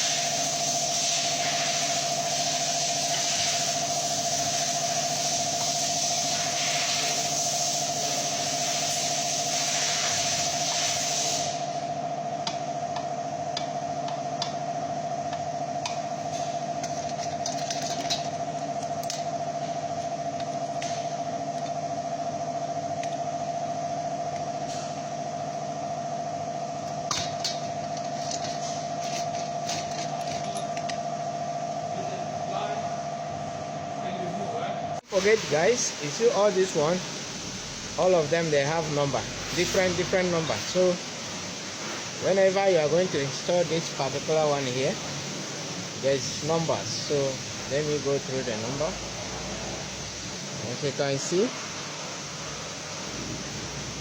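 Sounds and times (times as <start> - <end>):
high hiss: 0.0 - 12.0
steady hum: 0.0 - 54.0.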